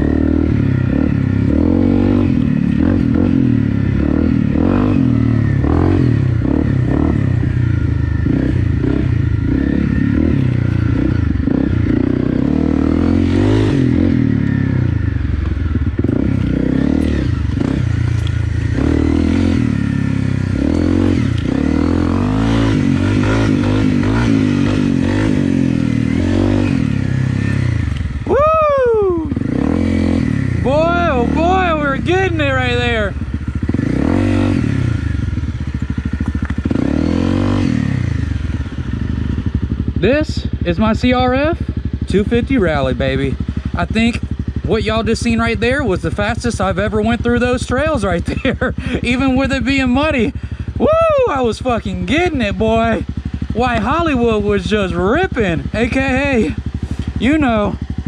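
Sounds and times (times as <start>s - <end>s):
motorcycle engine revving: 0.0s - 58.0s
engine clatter: 29.4s - 50.8s.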